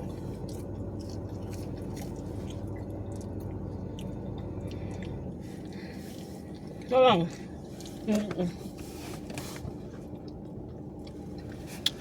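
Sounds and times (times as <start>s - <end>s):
person chewing food: 0.0s - 12.0s
steady low hum: 0.0s - 12.0s.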